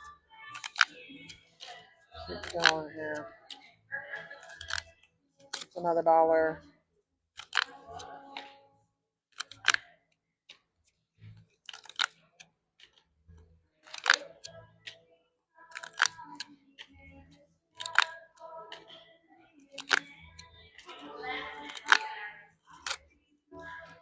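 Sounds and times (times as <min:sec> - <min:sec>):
paper tabs ripping: 0:00.5 - 0:00.9, 0:02.3 - 0:03.0, 0:04.4 - 0:04.9, 0:07.4 - 0:07.8, 0:09.4 - 0:09.8, 0:11.7 - 0:12.1, 0:13.8 - 0:14.3, 0:15.7 - 0:16.4, 0:17.8 - 0:18.2, 0:19.7 - 0:20.2, 0:21.6 - 0:22.1.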